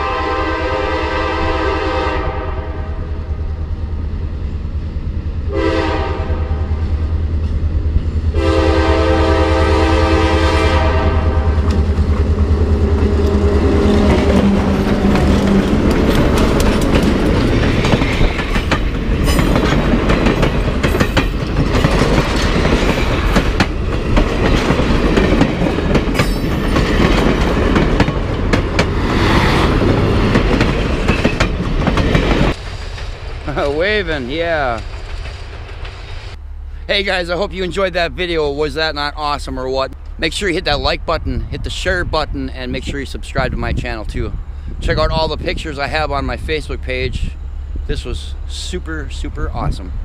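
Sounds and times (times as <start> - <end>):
locomotive air horn chord: 0.0 - 3.1, 5.5 - 6.8, 8.3 - 11.8
train cars rumbling: 0.0 - 50.0
diesel engine droning: 2.8 - 22.1, 36.0 - 42.9
wheels clacking over rail joints: 11.5 - 36.2.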